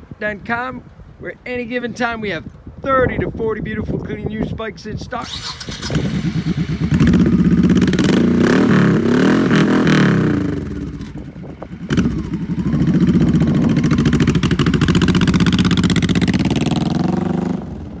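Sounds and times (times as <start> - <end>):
motorcycle engine revving: 5.2 - 18.0.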